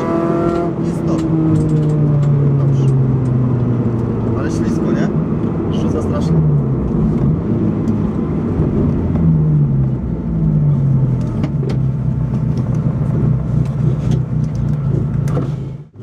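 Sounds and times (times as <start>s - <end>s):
car engine at low revs: 0.0s - 16.0s.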